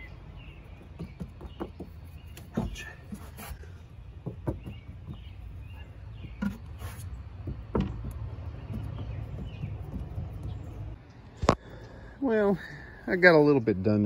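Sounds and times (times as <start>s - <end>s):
short knocks and taps: 0.8s - 3.2s, 4.2s - 5.5s, 6.2s - 6.8s, 7.4s - 11.0s.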